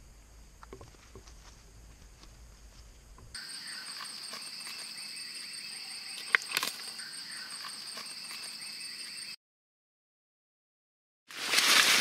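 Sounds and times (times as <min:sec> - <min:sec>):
crickets trilling: 0:00.0 - 0:09.4
short rustle: 0:11.3 - 0:12.0.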